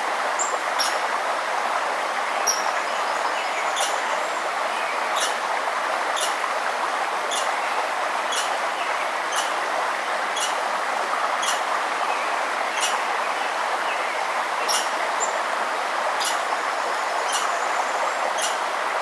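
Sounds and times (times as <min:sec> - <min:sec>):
forest river rushing: 0:00.0 - 0:19.0
bird chip calls: 0:00.4 - 0:01.0, 0:02.5 - 0:02.7, 0:03.5 - 0:04.2, 0:05.2 - 0:05.4, 0:06.2 - 0:06.4, 0:07.3 - 0:07.6, 0:08.3 - 0:08.6, 0:09.3 - 0:09.6, 0:10.4 - 0:10.6, 0:11.4 - 0:11.7, 0:12.7 - 0:13.1, 0:14.6 - 0:15.4, 0:16.2 - 0:16.5, 0:17.2 - 0:17.7, 0:18.3 - 0:18.6.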